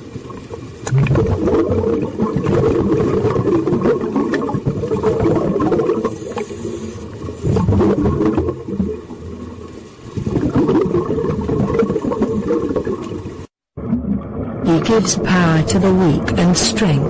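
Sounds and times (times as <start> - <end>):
deep rumbling water: 0.0 - 17.0.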